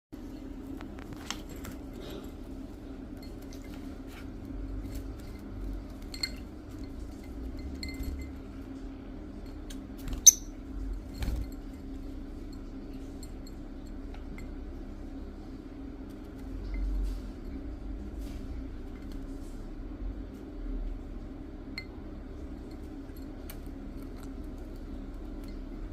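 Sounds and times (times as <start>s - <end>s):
steady low hum: 0.2s - 25.9s
bird clinking against glass: 10.2s - 10.6s.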